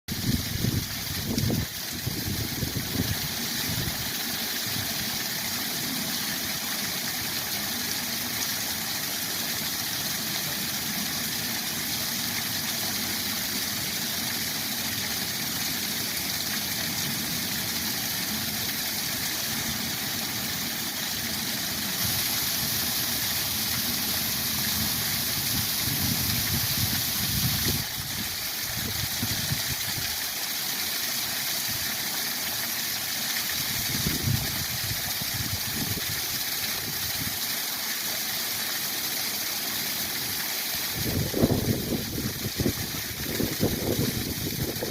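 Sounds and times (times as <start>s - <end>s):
waterfall roaring: 1.2s - 31.0s.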